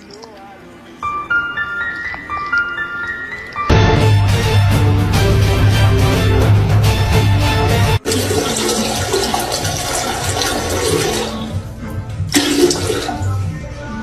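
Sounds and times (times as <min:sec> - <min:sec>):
rushing water: 0:08.0 - 0:11.6.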